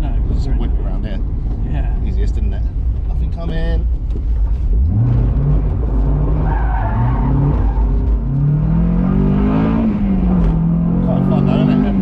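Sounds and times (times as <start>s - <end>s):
car engine revving hard: 4.8s - 12.0s
tyres squealing: 6.4s - 8.3s.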